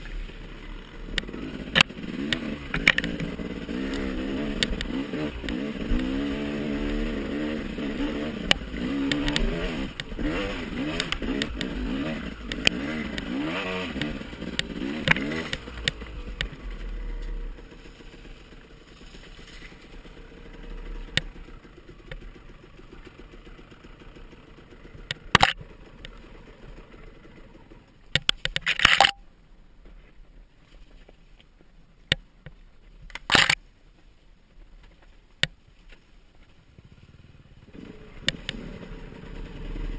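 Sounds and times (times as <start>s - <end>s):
dirt bike engine revving: 0.0s - 27.7s, 36.8s - 39.9s.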